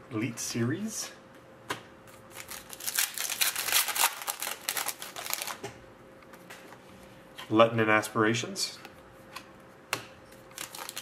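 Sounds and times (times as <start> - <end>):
crackling wrapper rustle: 2.3 - 5.6, 10.5 - 11.0.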